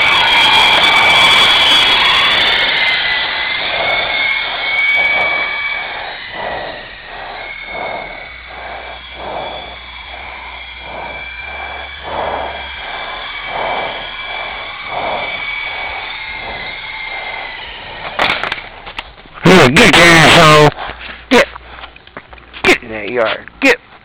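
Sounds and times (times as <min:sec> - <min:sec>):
pulsing rotor rush: 0:00.0 - 0:23.8
toy helicopter motor whine: 0:00.0 - 0:23.8.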